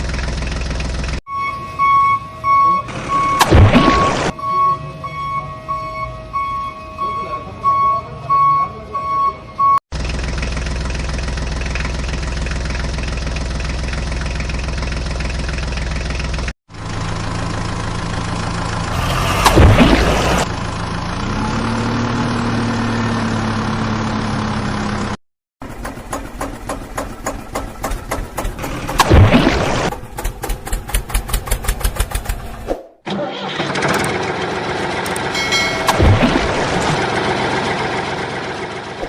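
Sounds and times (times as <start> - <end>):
engine idling: 0.0 - 1.2, 9.9 - 21.3, 22.0 - 29.2, 29.8 - 32.7, 33.4 - 39.0
engine running with rushing burst: 9.9 - 32.7, 33.5 - 39.0
pulsing fast engine: 25.6 - 32.7, 33.4 - 39.0.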